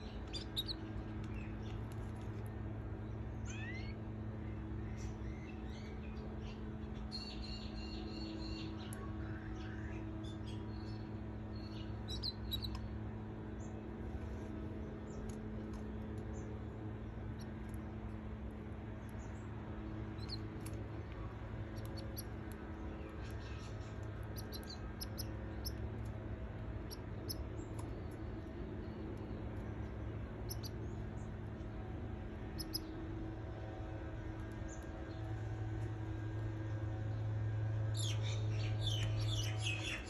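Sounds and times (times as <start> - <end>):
nestlings cheeping: 0.0 - 1.8, 10.6 - 12.9, 19.0 - 28.1, 28.8 - 30.9, 32.4 - 33.0
low hum: 0.0 - 40.0.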